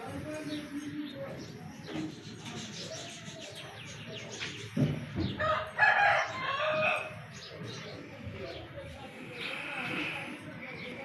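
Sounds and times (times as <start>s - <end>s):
small birds twittering: 0.0s - 11.0s
rooster crowing: 5.4s - 7.1s.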